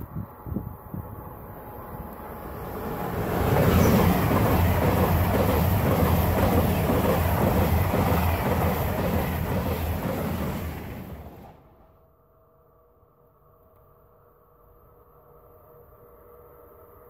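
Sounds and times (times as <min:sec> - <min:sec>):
train passing at speed: 0:00.0 - 0:12.1.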